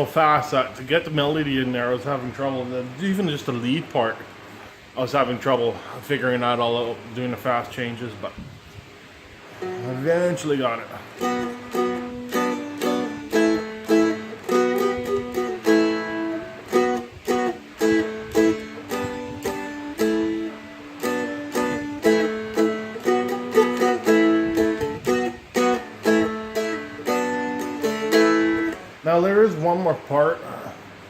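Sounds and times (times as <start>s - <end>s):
strummed four-string instrument: 9.5s - 29.3s.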